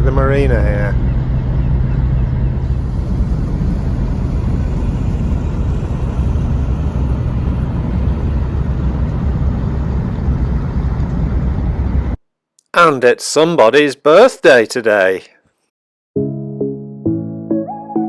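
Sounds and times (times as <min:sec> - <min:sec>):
ship engine droning: 0:00.1 - 0:12.2.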